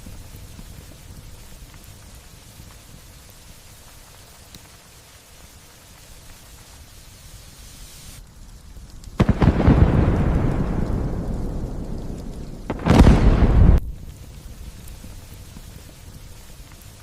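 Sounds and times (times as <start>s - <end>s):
light rain hiss: 0.0s - 17.0s
thunderclap rumbling: 9.1s - 15.2s.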